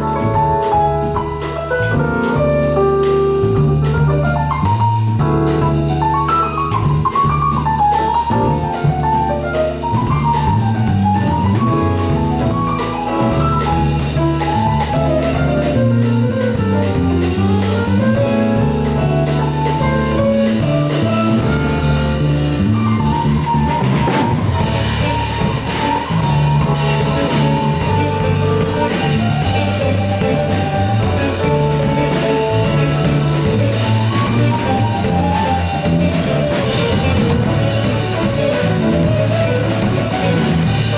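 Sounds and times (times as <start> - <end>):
bass groove: 0.0 - 40.9
drum kit groove: 0.0 - 40.9
melodic lead line: 16.4 - 40.9.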